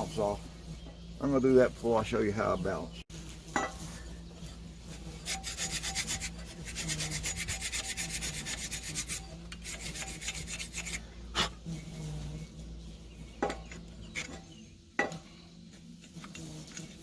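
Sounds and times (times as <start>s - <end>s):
scraping on steel blade: 5.2s - 11.5s.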